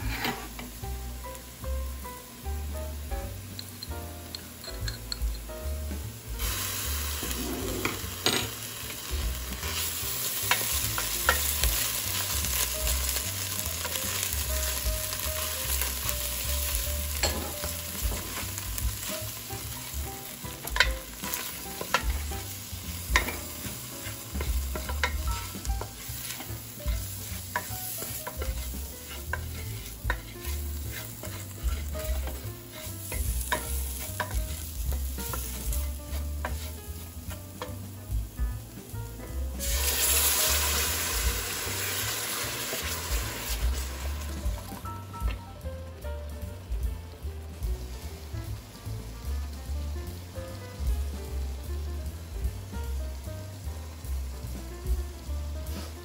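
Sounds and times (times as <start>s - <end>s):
wooden spoon scraping pot: 0.0s - 0.6s, 23.1s - 37.1s
vegetables sizzling in a pot: 0.0s - 56.0s.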